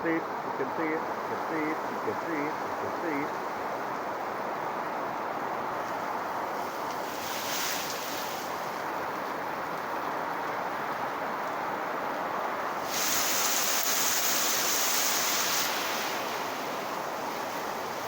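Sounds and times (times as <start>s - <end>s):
heavy rain pouring: 0.0s - 3.4s, 11.9s - 18.0s.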